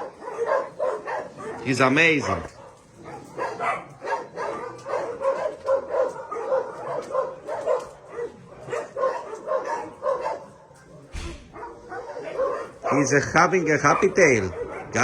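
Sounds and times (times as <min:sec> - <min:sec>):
dogs barking and yipping: 0:00.0 - 0:15.0.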